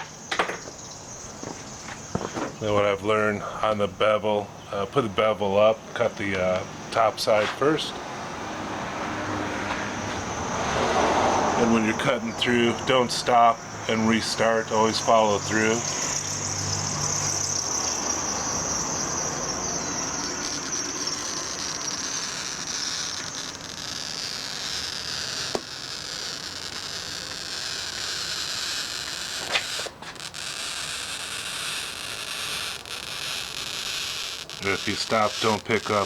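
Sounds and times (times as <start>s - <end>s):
glass cutter scoring glass: 14.4s - 36.0s.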